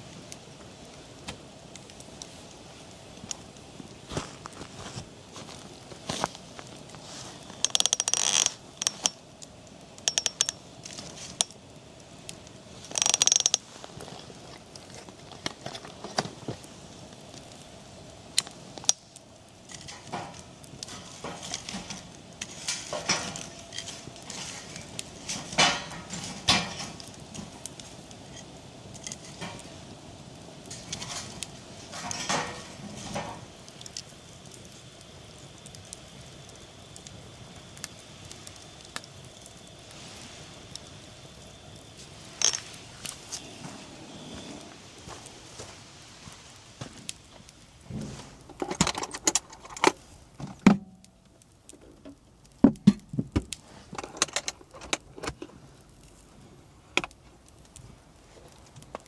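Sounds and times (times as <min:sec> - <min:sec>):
objects being handled: 0:12.8 - 0:17.8, 0:19.7 - 0:29.8, 0:42.3 - 0:50.8.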